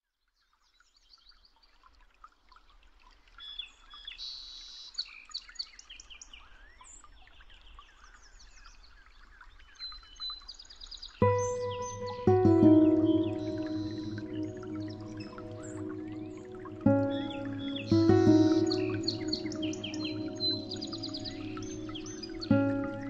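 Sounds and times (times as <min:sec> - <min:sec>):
bird trill: 0:11.2 - 0:23.0
birds chirping and singing: 0:11.2 - 0:23.0.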